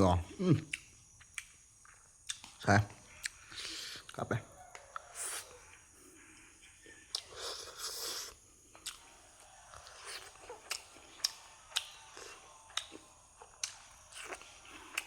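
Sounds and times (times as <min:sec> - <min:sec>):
wet mouth clicks: 0:00.6 - 0:02.5, 0:12.7 - 0:15.0
chewing: 0:00.6 - 0:15.0.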